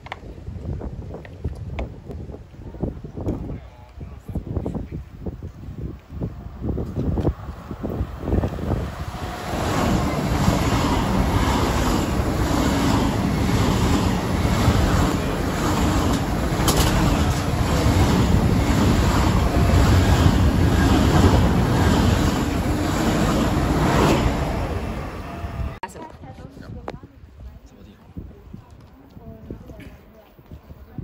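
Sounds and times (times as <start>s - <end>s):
train rushing past: 6.2s - 25.8s.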